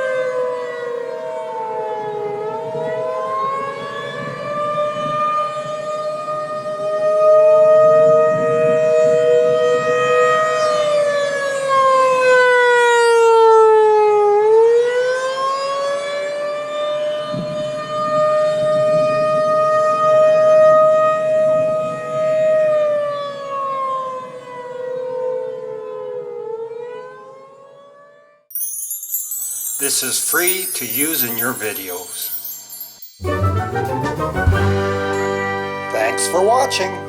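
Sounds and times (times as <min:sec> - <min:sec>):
warning siren wailing: 0:00.0 - 0:28.4.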